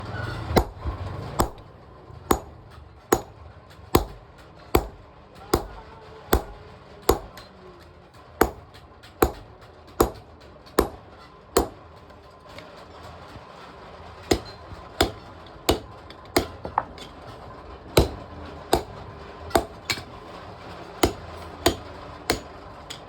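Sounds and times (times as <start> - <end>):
hammer striking steel on anvil: 0.5 - 1.7, 2.3 - 7.5, 8.4 - 11.8, 14.3 - 17.2, 18.0 - 20.2, 21.0 - 23.0.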